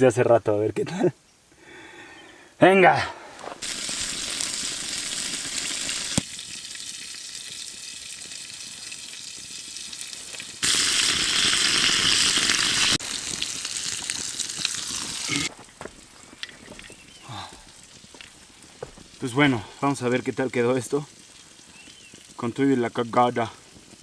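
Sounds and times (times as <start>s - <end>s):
food sizzling in a pan: 3.6s - 15.5s, 20.2s - 24.0s.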